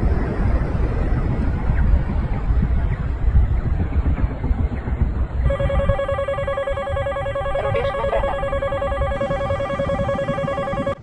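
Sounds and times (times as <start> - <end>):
continuous low rumble: 0.0 - 11.0
fast-pulsing electronic tone: 5.5 - 11.0.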